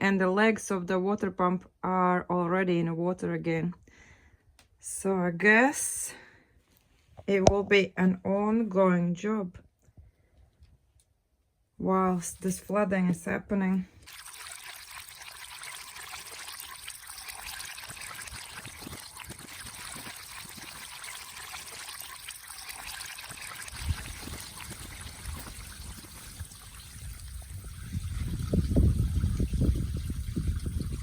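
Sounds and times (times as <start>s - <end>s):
water pouring and trickling: 13.9s - 31.0s.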